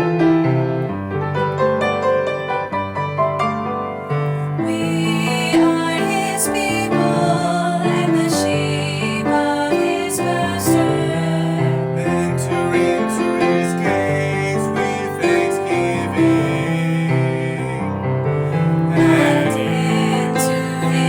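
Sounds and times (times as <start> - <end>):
gospel-style piano music: 0.0 - 21.0.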